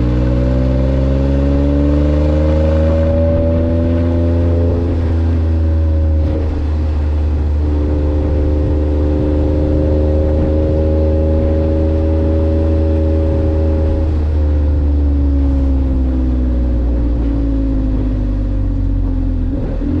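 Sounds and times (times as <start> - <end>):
engine exhaust drone: 0.0 - 20.0.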